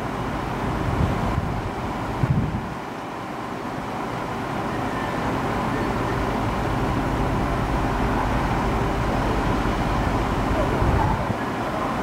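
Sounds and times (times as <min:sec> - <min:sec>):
electric locomotive hauling train: 0:00.0 - 0:12.0.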